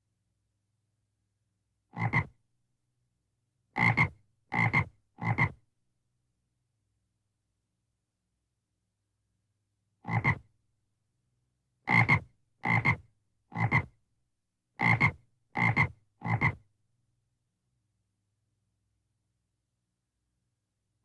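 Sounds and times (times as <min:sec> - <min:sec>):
frog croaking: 0:02.0 - 0:02.3, 0:03.8 - 0:05.5, 0:10.1 - 0:10.4, 0:11.9 - 0:13.0, 0:14.8 - 0:16.6.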